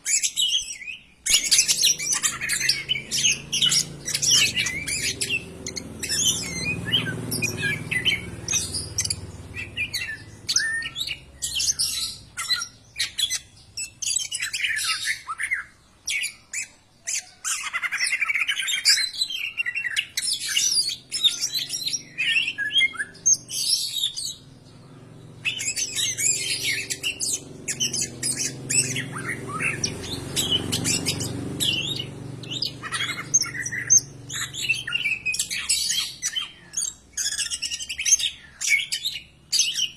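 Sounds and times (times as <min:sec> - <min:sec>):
bird singing varied chirps: 0:00.0 - 0:39.9.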